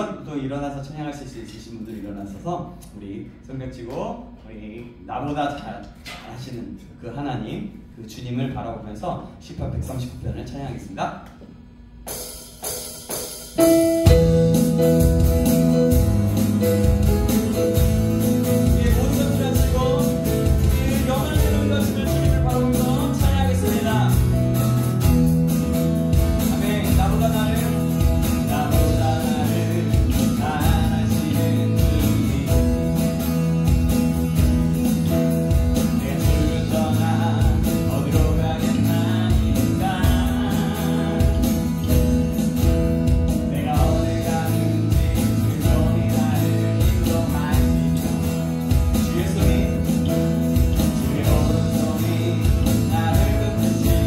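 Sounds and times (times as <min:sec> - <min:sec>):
worship band playing: 0:12.1 - 0:54.0
person singing: 0:18.4 - 0:24.4, 0:26.3 - 0:33.2, 0:35.8 - 0:42.1, 0:43.3 - 0:54.0.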